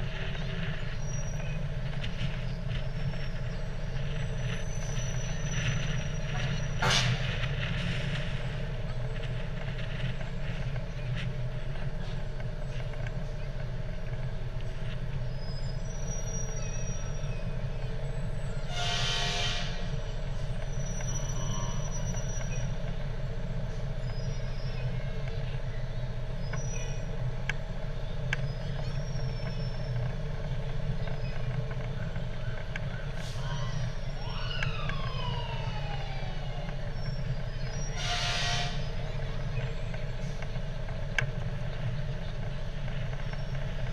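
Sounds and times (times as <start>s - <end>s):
diesel engine rumbling: 0.0s - 43.9s
siren winding down: 33.4s - 37.1s.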